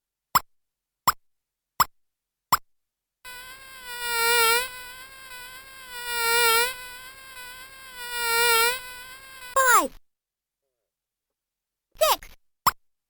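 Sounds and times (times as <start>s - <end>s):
buzzing warbling electronic tone: 3.3s - 9.6s.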